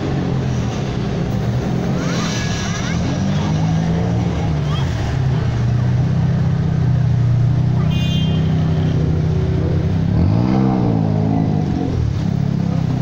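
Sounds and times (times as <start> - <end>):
engine revving: 8.6 - 13.0.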